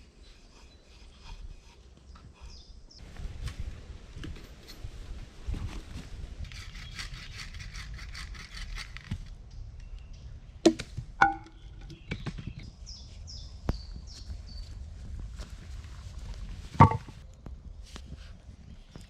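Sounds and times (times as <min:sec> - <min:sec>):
sharp metallic knocks: 0:10.7 - 0:11.9, 0:16.8 - 0:17.2.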